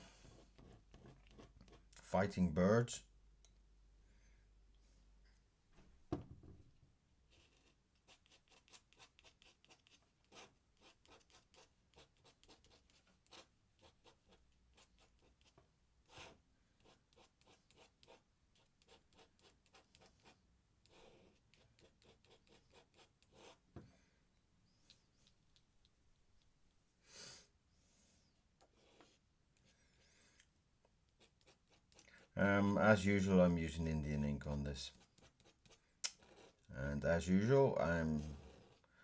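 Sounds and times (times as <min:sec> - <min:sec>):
pen scratching on paper: 0:00.3 - 0:01.9, 0:07.3 - 0:23.6, 0:28.7 - 0:29.2, 0:31.1 - 0:32.3, 0:34.9 - 0:36.7, 0:38.1 - 0:38.9
knock: 0:06.1 - 0:06.6.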